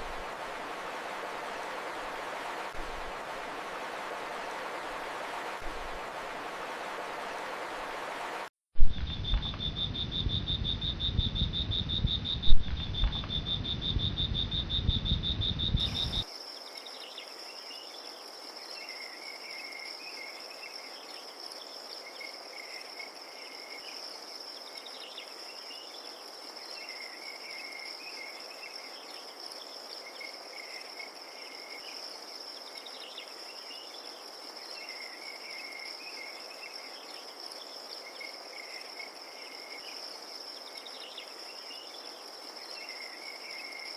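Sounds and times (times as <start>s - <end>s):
crickets trilling: 8.8s - 43.9s
soft cricket chirps: 8.8s - 43.9s.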